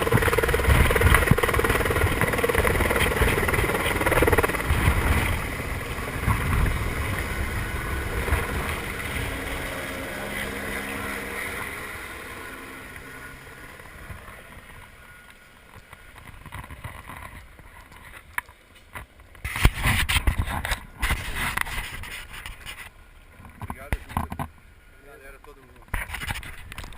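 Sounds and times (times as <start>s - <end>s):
wind gusts on microphone: 0.0s - 10.6s
helicopter rotor and engine: 0.0s - 26.9s.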